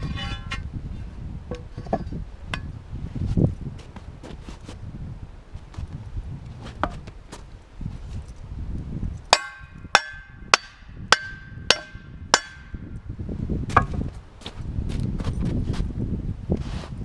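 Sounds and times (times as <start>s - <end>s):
hammer striking hot steel: 9.3s - 12.8s.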